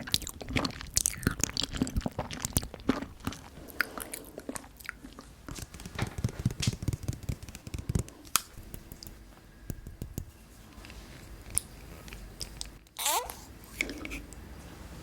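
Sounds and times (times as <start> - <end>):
wet eating sounds: 0.0 - 5.9.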